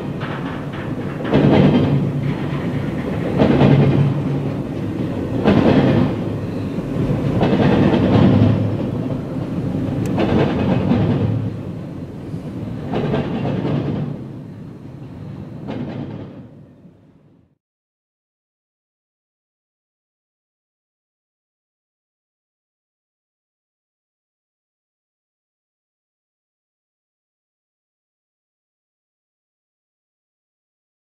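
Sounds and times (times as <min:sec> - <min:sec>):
train wheels clattering over rails: 0:00.0 - 0:17.0.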